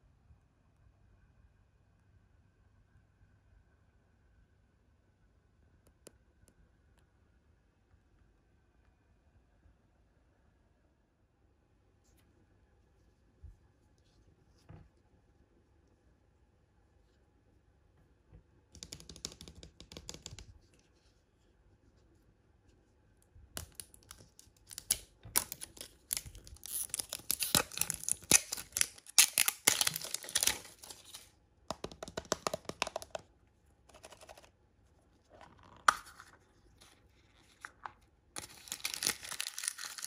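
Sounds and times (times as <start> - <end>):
packaging wrappers crinkling: 23.6 - 31.3, 38.4 - 40.0.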